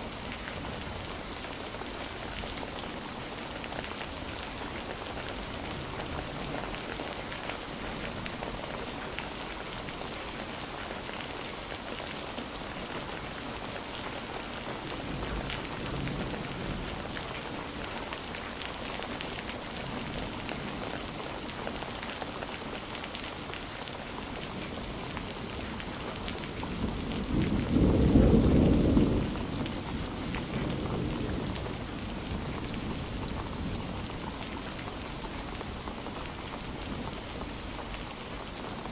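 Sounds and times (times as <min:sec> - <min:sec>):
steady rain falling: 0:00.0 - 0:38.9
rumble of thunder: 0:14.9 - 0:17.3, 0:26.5 - 0:34.4.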